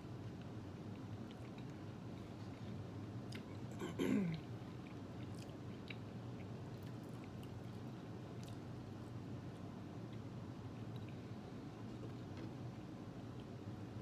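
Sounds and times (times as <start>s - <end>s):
chewing and lip-smacking: 0.3s - 3.8s, 4.8s - 8.8s.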